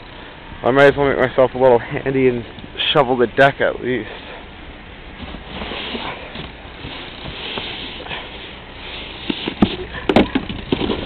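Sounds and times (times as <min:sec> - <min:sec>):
snow shovel scraping snow: 0:05.2 - 0:10.1.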